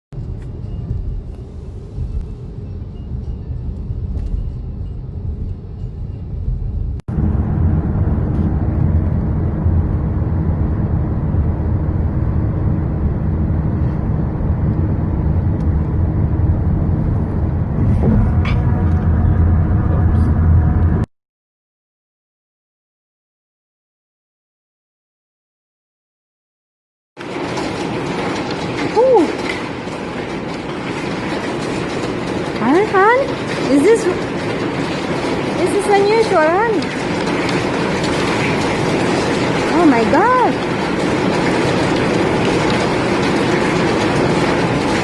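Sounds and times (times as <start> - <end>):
hail falling: 27.2 - 45.0.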